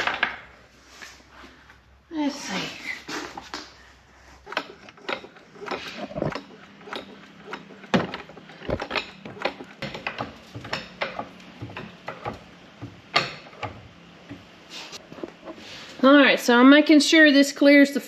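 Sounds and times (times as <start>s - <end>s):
floor jack clicking and clanking: 4.4s - 15.6s.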